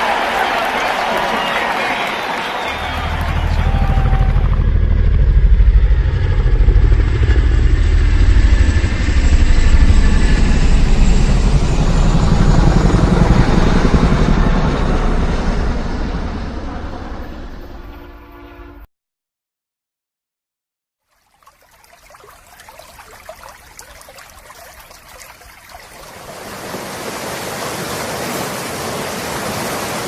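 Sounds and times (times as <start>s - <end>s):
vehicle engine rumbling: 2.8s - 9.1s.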